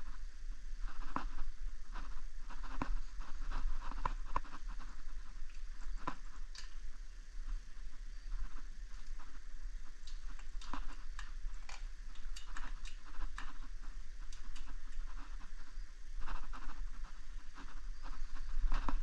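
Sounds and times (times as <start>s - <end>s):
brush fire crackling: 0.8s - 19.0s.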